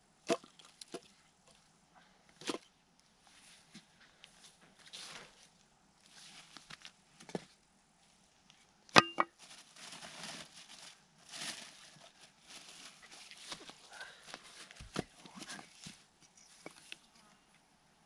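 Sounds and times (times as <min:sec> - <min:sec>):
rustling and scuffing: 0:03.2 - 0:08.2, 0:09.3 - 0:17.0.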